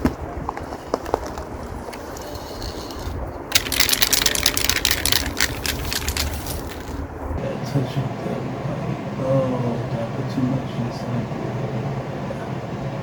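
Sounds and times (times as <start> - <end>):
low rumble: 0.0 - 13.0
rapid dense rattle of clicks: 3.5 - 7.0.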